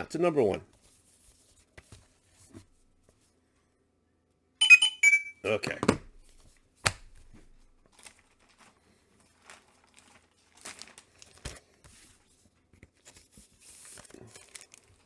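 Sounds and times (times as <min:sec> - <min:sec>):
packaging crinkling: 0:09.4 - 0:11.4.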